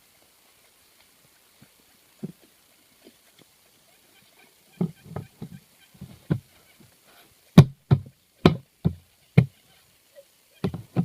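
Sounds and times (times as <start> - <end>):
irregular knocks: 7.6 - 9.5, 10.6 - 11.0.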